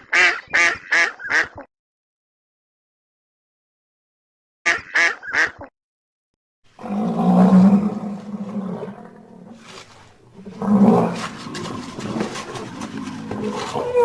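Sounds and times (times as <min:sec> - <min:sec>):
long deep animal call: 0:06.8 - 0:09.6, 0:10.4 - 0:14.0.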